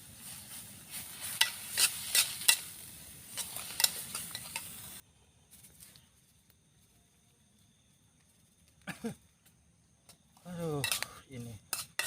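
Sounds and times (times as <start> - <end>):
food sizzling in a pan: 0.0 - 5.0
utensil scraping a pan: 1.1 - 5.0, 11.7 - 12.0.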